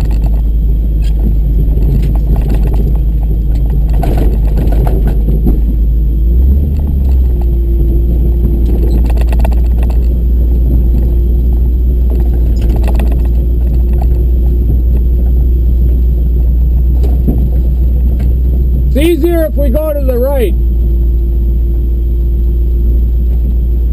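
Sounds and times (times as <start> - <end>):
short rattles: 0.0 - 5.8, 8.4 - 15.4
truck engine deep rumble: 0.0 - 23.9.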